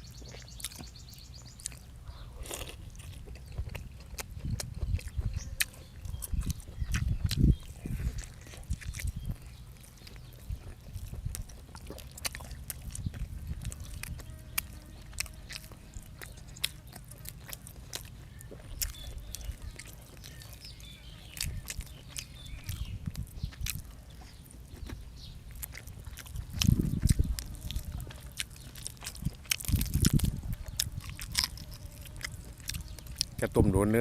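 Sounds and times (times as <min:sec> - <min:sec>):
person chewing and crunching food: 0:00.0 - 0:34.0
wet mouth clicks: 0:03.7 - 0:09.4, 0:24.8 - 0:33.4.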